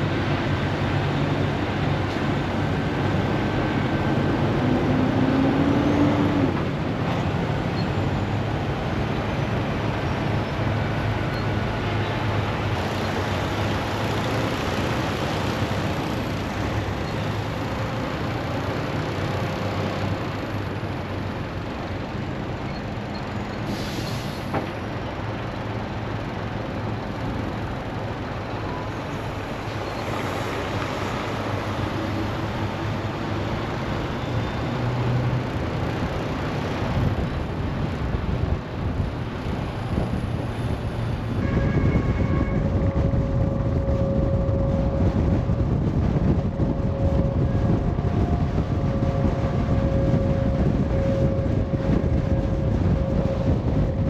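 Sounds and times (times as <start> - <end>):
diesel truck engine drone: 0.0 - 54.0
road noise: 0.0 - 54.0.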